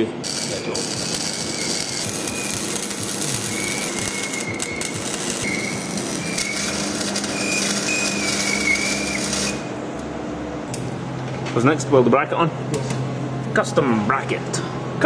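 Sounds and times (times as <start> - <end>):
welder crackling: 0.0 - 9.8.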